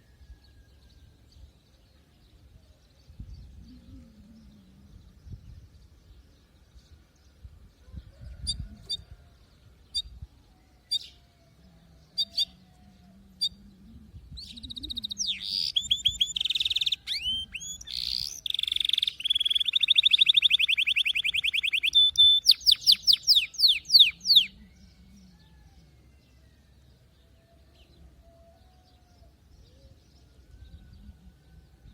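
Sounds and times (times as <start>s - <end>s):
canary song with rolling trills: 1.0s - 31.9s
canary chirps: 14.4s - 24.6s.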